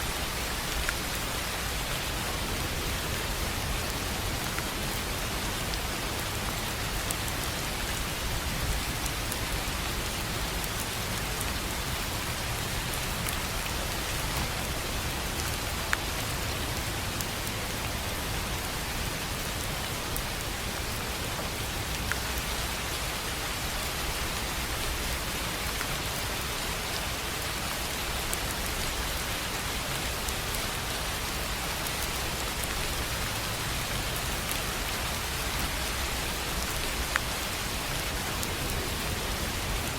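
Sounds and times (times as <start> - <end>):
rain on a tin roof: 0.0 - 39.9.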